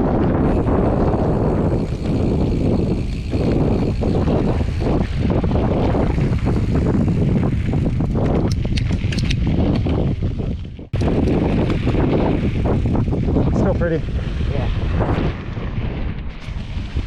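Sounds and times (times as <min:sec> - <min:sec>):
bike clicks and rattles: 0:00.0 - 0:17.0
wind buffeting microphone: 0:00.0 - 0:17.0.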